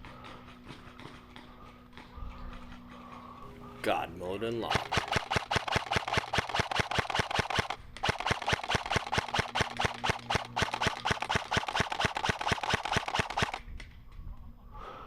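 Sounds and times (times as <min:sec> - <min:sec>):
airsoft gun rapid firing: 0:04.6 - 0:13.6.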